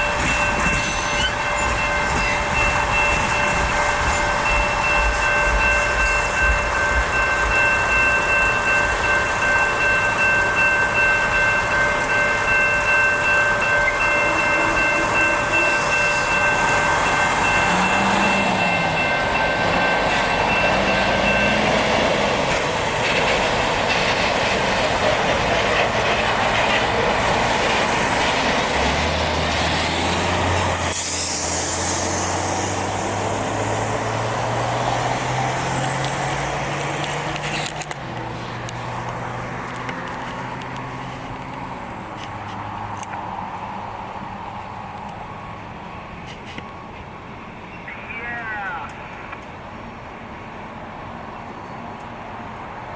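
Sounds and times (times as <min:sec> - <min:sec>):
electronic crossing bell: 0:00.0 - 0:22.4
freight train wheel clatter: 0:00.0 - 0:31.7
vehicle engine pulling away: 0:27.4 - 0:39.3.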